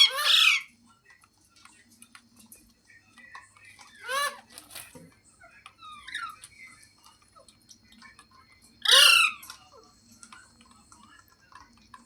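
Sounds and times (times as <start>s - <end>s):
parrot squawk: 0.0s - 0.7s, 4.0s - 4.6s, 5.8s - 6.4s, 8.8s - 9.5s.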